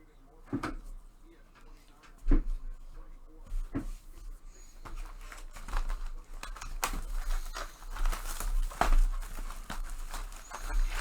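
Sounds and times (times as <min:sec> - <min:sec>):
cards being handled: 0:03.6 - 0:11.0
card pack wrappers crinkling: 0:04.5 - 0:11.0.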